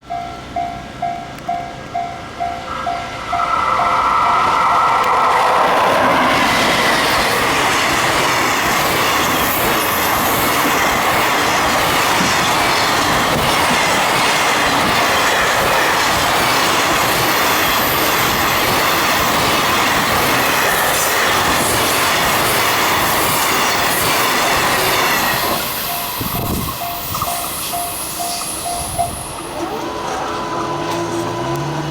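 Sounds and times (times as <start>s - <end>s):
freight train wheels clattering: 1.0s - 31.9s.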